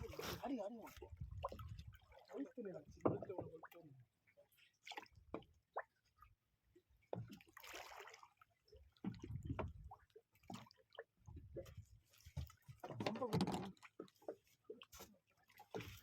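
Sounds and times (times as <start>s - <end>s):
water dripping and splashing: 0.0s - 4.0s.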